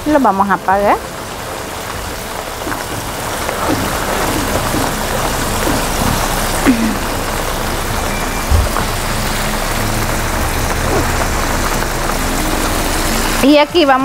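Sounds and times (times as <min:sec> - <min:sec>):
steady rain falling: 0:00.0 - 0:14.0
low thump: 0:08.5 - 0:08.9.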